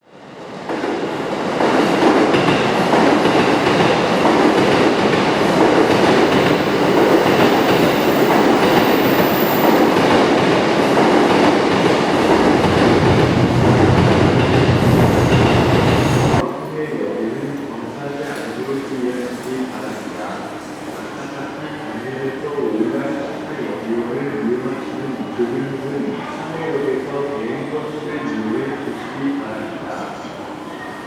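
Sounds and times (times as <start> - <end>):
electric train running: 2.6 - 16.4.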